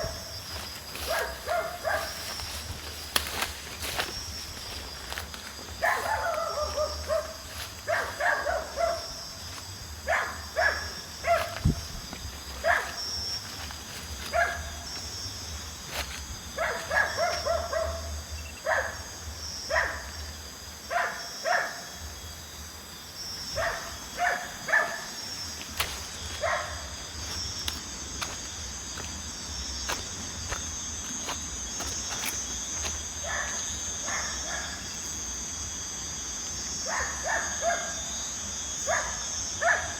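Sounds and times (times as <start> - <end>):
crickets chirping: 0.0 - 39.9
dog barking: 1.0 - 2.3, 5.8 - 9.2, 10.0 - 11.7, 12.6 - 13.0, 14.2 - 14.8, 16.6 - 19.1, 19.7 - 20.1, 20.9 - 21.9, 23.6 - 25.2, 26.4 - 27.0, 33.2 - 34.9, 36.8 - 38.0, 38.9 - 39.9.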